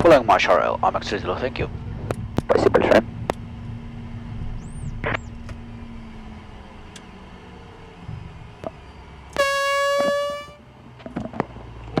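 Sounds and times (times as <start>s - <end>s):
low steady cockpit hum: 1.7s - 10.8s
faint tone sliding down in pitch: 9.4s - 10.6s
loud horn-like tone: 9.4s - 10.8s.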